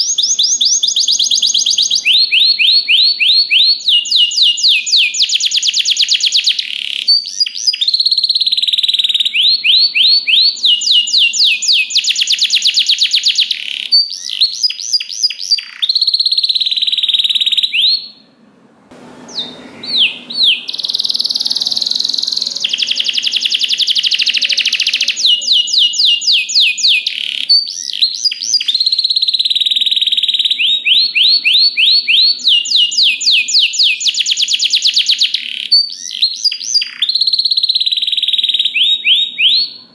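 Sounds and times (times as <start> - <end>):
canary singing trills: 0.0 - 18.4, 19.2 - 39.9.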